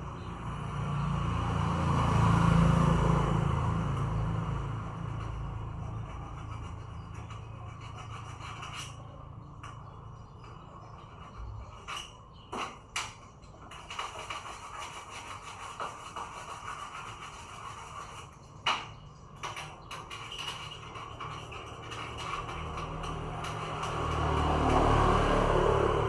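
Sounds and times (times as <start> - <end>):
rubbing and scraping handling noise: 4.6 - 25.2.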